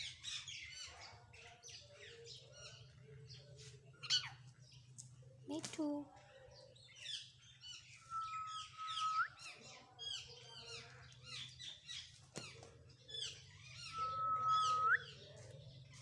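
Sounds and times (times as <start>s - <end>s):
parrot whistle flicking upward: 8.1s - 9.3s.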